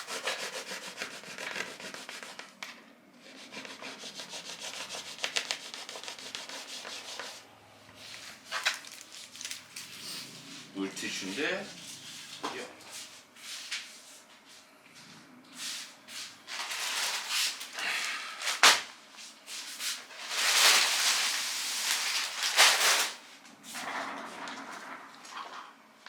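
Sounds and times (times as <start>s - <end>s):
clothing and plastic packaging rustling: 8.0s - 14.5s, 15.7s - 23.4s.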